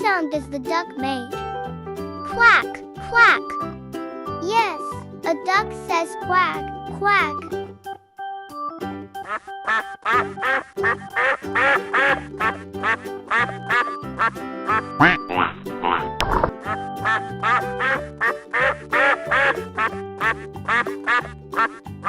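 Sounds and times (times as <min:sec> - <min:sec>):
background music: 0:00.0 - 0:22.0
ducks quacking: 0:09.2 - 0:22.0.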